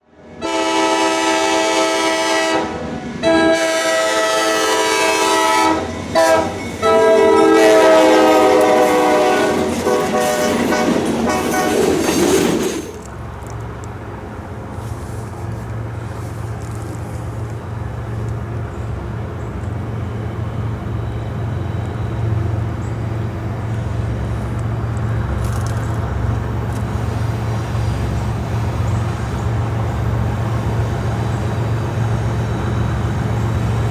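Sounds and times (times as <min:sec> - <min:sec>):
passing train rumble: 0:00.0 - 0:33.9
train air horn blasts: 0:00.3 - 0:12.0.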